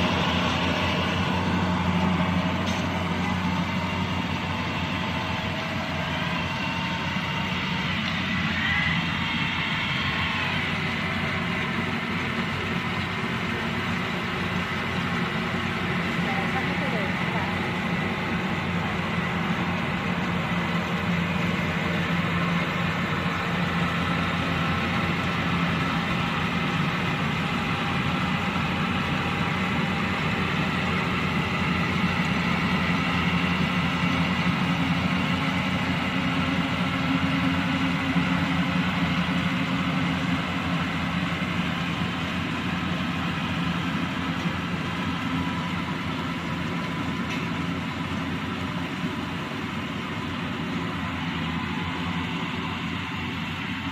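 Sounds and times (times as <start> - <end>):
combine harvester diesel engine: 0.0 - 53.9.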